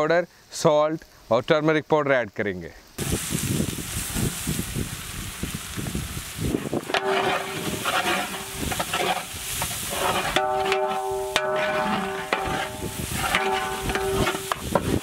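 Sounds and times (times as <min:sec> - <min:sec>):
onions sizzling in hot oil: 0:02.9 - 0:15.0
metal ladle scraping a pot: 0:06.8 - 0:15.0.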